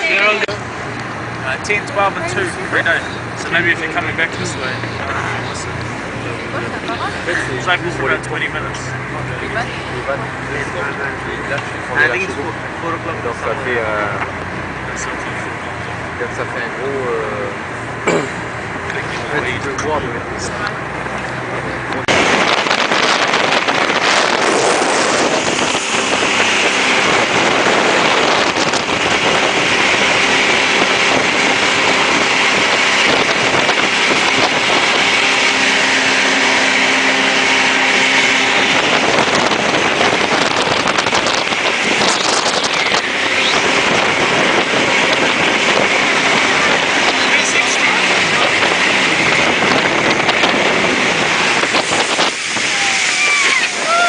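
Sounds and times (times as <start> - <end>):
jet boat engine roar: 0.0 - 54.0
wind buffeting microphone: 0.0 - 54.0.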